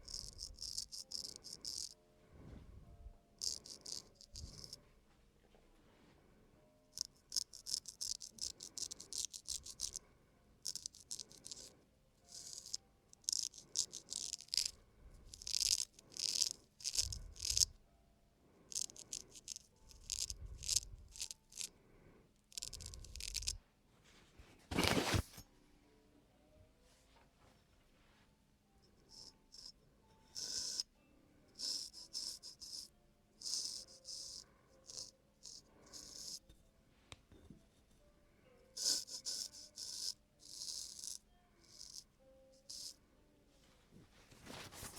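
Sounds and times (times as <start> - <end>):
razor scraping skin: 0.0 - 2.0, 3.4 - 4.8, 7.0 - 10.0, 10.6 - 11.7, 12.3 - 17.7, 18.7 - 21.7, 22.5 - 23.6, 30.3 - 30.9, 31.6 - 36.4, 38.8 - 43.0.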